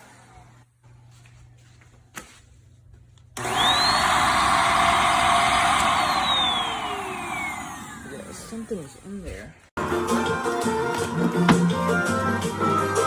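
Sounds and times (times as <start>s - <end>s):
vacuum cleaner motor whining: 3.4s - 9.4s.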